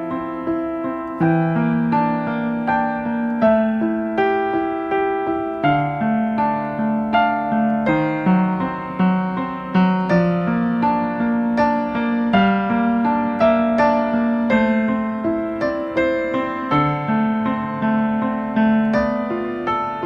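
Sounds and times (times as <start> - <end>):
calm piano music: 0.0 - 20.0.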